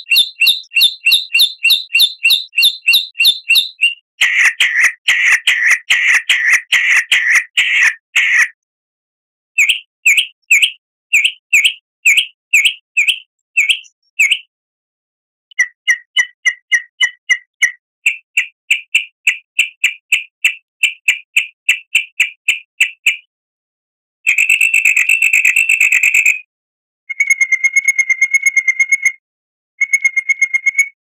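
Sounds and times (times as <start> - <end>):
recorded songbird chirps: 0.0 - 8.4, 9.6 - 14.5, 15.5 - 23.3.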